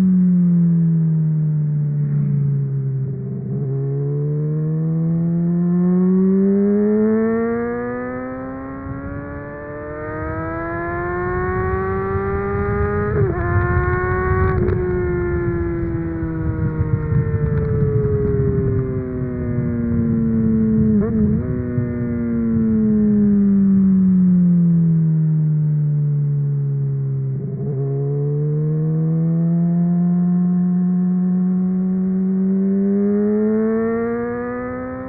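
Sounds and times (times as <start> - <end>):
motorcycle engine accelerating: 0.0 - 35.0
wind rumble: 0.8 - 6.7, 7.4 - 29.4.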